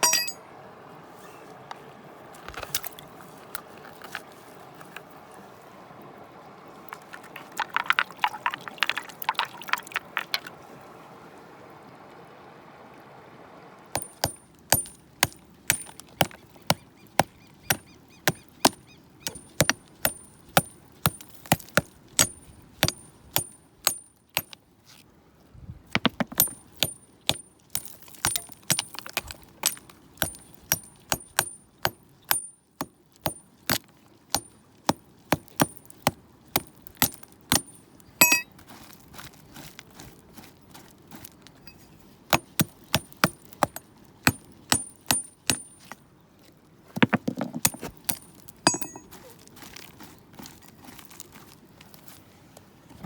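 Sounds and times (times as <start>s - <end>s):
metal tool striking stone: 0.0s - 0.4s, 14.0s - 16.8s, 17.7s - 24.6s, 26.0s - 34.5s, 35.4s - 38.5s, 41.6s - 46.0s, 47.0s - 49.1s.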